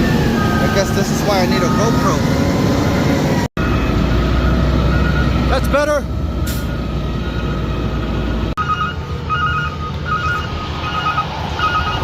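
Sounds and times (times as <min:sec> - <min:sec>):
reversing alarm beeping: 0:03.1 - 0:05.6, 0:06.5 - 0:12.0.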